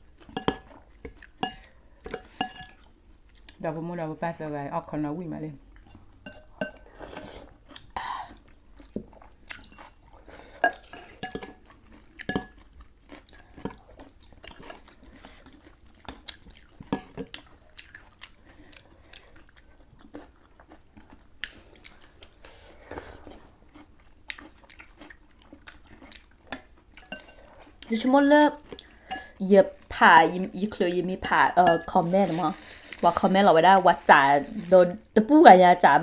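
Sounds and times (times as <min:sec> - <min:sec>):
people chewing: 0:05.8 - 0:28.0, 0:28.6 - 0:35.1.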